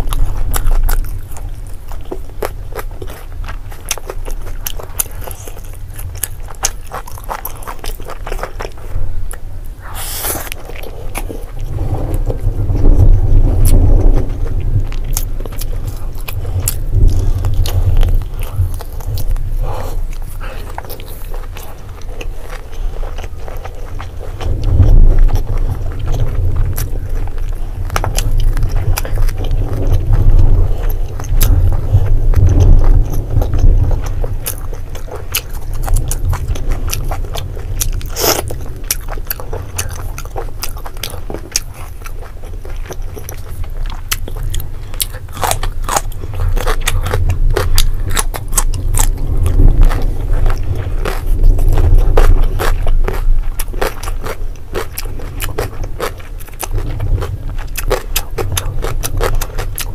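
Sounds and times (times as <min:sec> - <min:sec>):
person chewing: 0:00.0 - 0:59.9
steady low rumble: 0:00.0 - 0:59.9.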